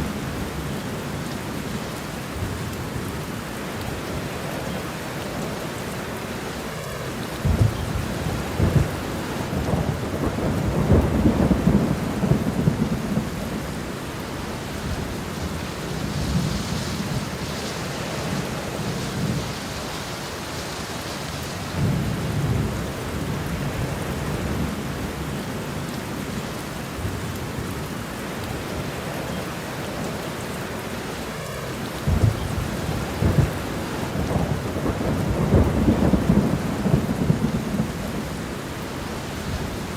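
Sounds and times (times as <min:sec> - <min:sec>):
steady rain: 0:00.0 - 0:39.9
rolling thunder: 0:07.3 - 0:19.9, 0:32.0 - 0:39.9.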